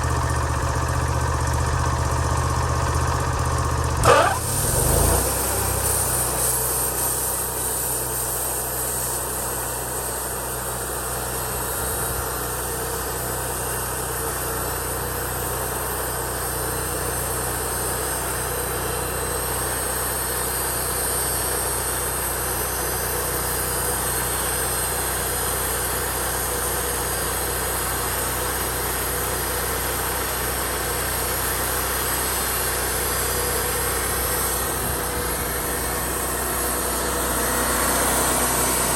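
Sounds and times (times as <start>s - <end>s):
band sawmill engine drone: 0.0s - 38.9s
saw hissing through boards: 4.0s - 26.0s, 29.9s - 38.9s.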